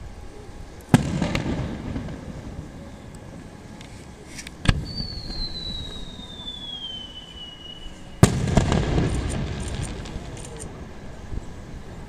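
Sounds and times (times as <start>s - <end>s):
firework shell whistling: 0.8s - 10.8s
rumbling echo: 0.9s - 3.7s, 8.2s - 10.4s.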